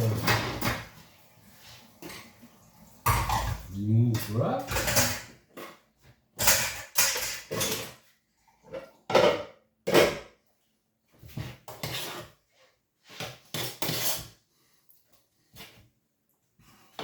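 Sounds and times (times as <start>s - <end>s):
dishes and cutlery clattering: 3.0s - 10.4s.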